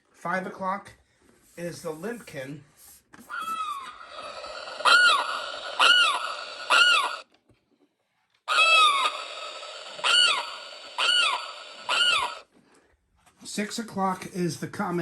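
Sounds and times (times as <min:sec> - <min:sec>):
recorded bird cries from small speaker: 0:03.3 - 0:07.3, 0:08.5 - 0:12.5.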